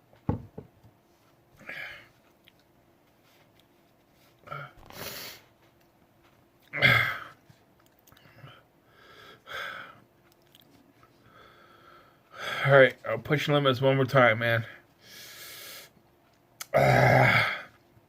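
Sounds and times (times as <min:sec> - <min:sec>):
man groaning and exhaling hard: 0:16.7 - 0:17.7.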